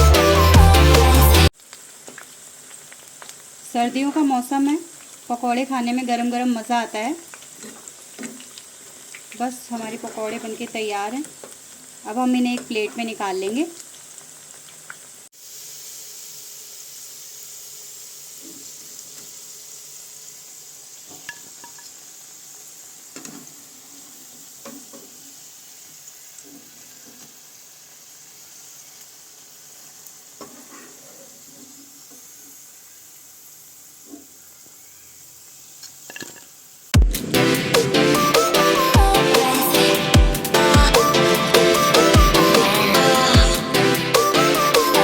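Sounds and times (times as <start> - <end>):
music: 0.0 - 1.5, 37.0 - 45.0
food deep-frying in oil: 1.5 - 38.8
spoon scraping a pan: 9.8 - 10.8, 30.4 - 32.2.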